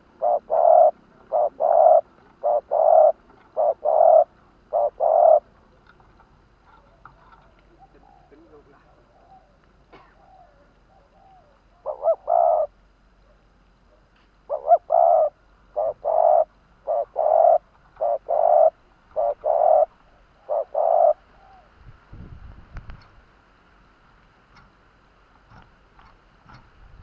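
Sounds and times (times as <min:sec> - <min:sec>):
dove cooing: 0:00.0 - 0:05.8, 0:06.7 - 0:21.8.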